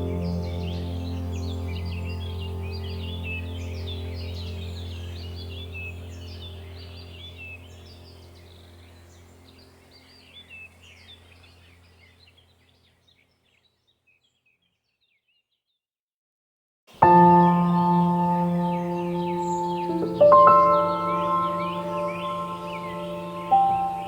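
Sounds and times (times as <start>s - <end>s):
low steady drone: 0.0s - 10.9s, 17.0s - 24.0s
small birds chirping: 0.0s - 15.8s, 16.9s - 24.0s.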